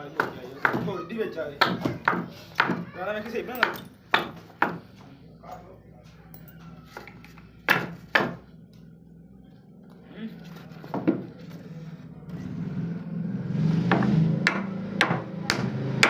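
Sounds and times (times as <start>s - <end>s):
hand tool striking hard surface: 1.6s - 4.8s, 13.9s - 15.7s.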